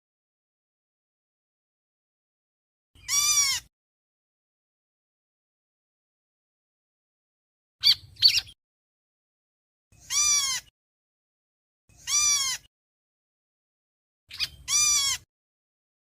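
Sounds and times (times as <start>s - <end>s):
bird giving harsh arched calls: 3.0s - 3.7s, 7.8s - 8.6s, 10.0s - 10.7s, 11.9s - 12.7s, 14.3s - 15.3s.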